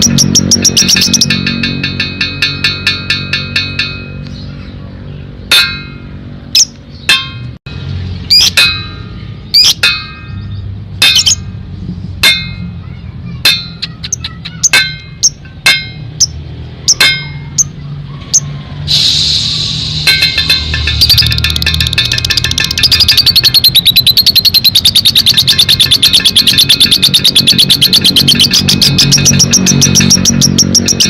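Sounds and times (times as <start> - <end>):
lovebird chirping: 0.0 - 1.4, 8.2 - 8.6, 9.2 - 11.4, 16.2 - 18.5, 19.8 - 31.0.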